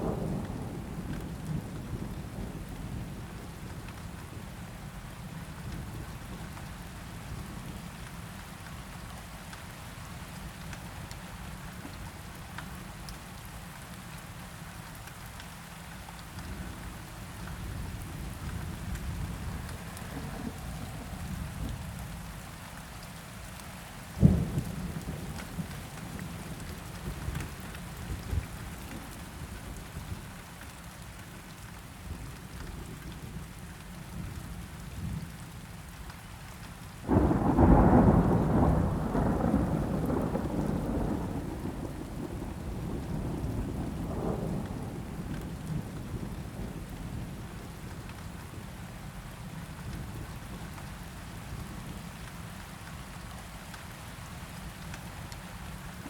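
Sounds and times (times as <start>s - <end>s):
steady rain: 0.0s - 56.0s
thunderclap rumbling: 17.8s - 22.1s, 37.1s - 46.7s.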